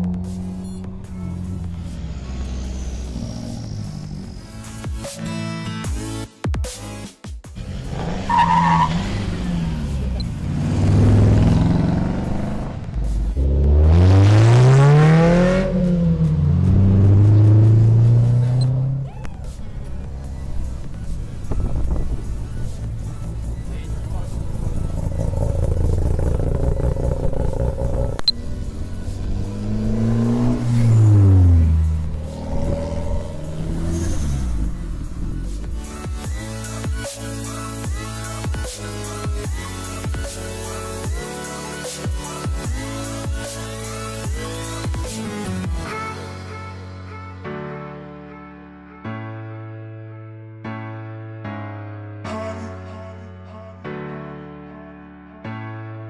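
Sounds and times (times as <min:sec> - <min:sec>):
car engine revving: 0:00.0 - 0:05.0, 0:07.6 - 0:36.8.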